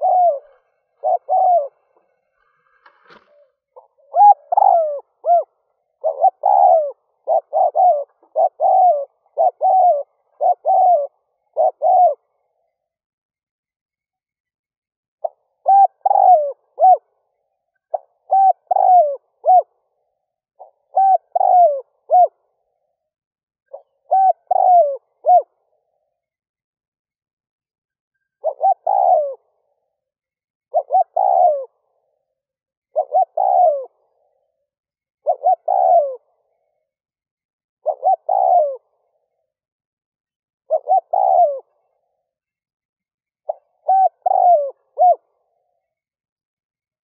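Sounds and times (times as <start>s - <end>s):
dove cooing: 0.0s - 12.8s, 15.2s - 23.0s, 23.7s - 26.3s, 28.2s - 30.0s, 30.7s - 34.6s, 35.2s - 37.0s, 37.8s - 39.6s, 40.6s - 42.4s, 43.4s - 46.0s.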